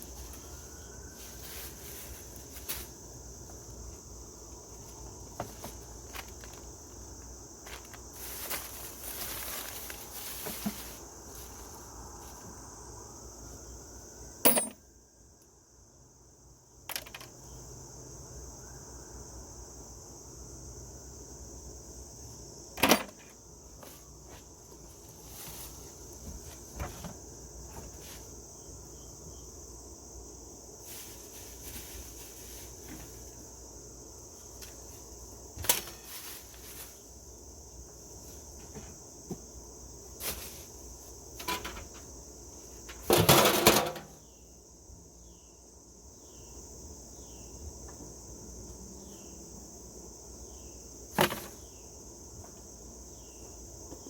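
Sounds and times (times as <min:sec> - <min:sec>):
insects droning: 0:00.0 - 0:54.0
sharp knocks and clunks: 0:14.4 - 0:14.8, 0:22.8 - 0:23.4, 0:42.9 - 0:44.2, 0:51.1 - 0:51.6.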